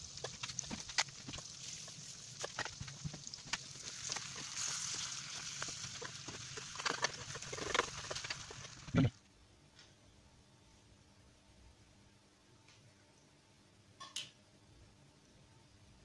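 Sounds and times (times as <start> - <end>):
eggs and beans sizzling in oil: 0.0 - 9.2
spoon scraping a pan: 0.2 - 8.8.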